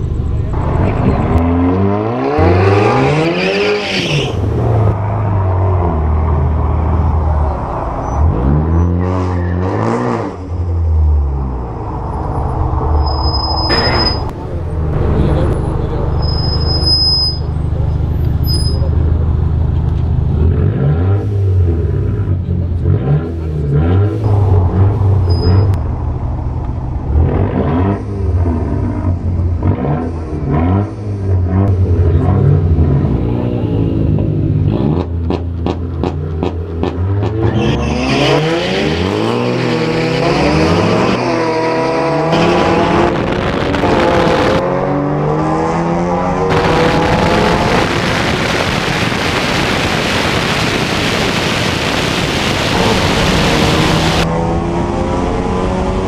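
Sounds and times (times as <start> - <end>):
car engines idling: 0.0 - 1.4, 14.2 - 16.3
car engine idling and revving: 0.0 - 56.0
engine revving blips: 31.5 - 55.5.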